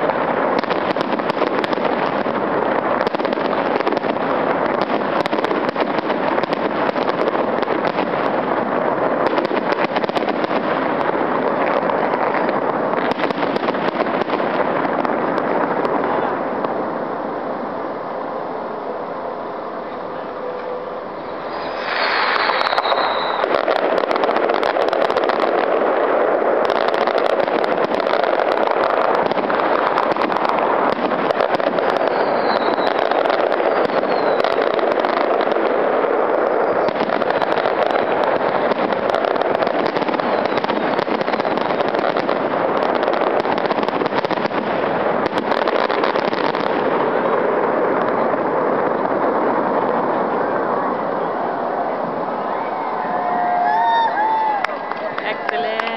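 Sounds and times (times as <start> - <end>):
falling fireworks whistles: 0.0 - 48.2, 49.9 - 55.9
fireworks bursts and crackling: 0.0 - 55.9
sharp fireworks bangs: 0.0 - 55.9.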